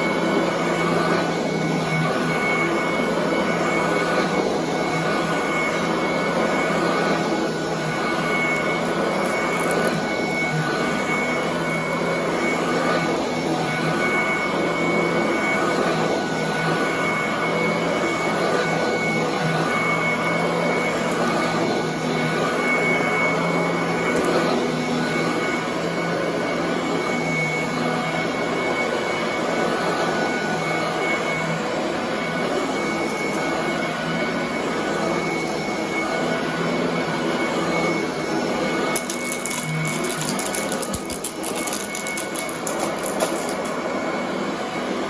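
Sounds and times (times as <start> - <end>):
vacuum cleaner running: 0.0 - 45.0
rapid crackle of clicks: 39.0 - 43.7.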